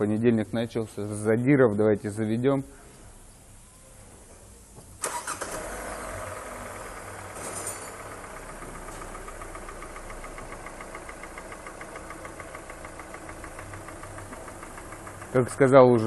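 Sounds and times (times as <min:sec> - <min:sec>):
car engine starting: 0:05.0 - 0:16.0
engine idling with regular knock: 0:06.6 - 0:16.0.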